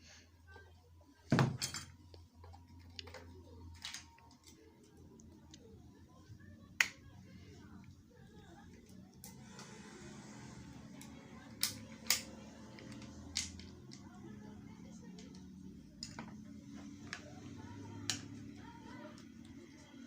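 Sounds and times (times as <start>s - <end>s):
metal tool parts clicking: 11.6s - 13.7s.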